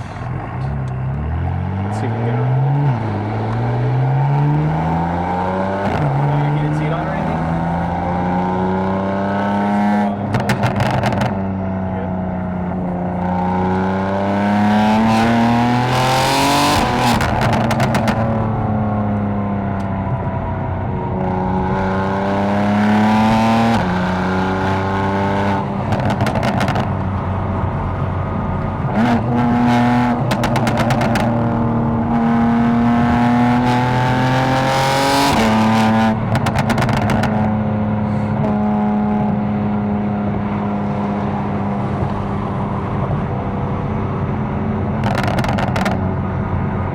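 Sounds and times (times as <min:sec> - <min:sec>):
car engine revving through gears: 0:00.6 - 0:46.2
exhaust crackling: 0:25.6 - 0:34.0.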